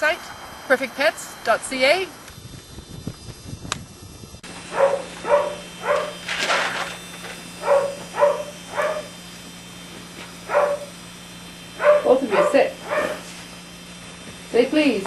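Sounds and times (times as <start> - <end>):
steady low hum: 0.0 - 15.0
dog barking: 4.7 - 6.2, 7.6 - 9.2, 10.5 - 10.9, 11.8 - 13.3.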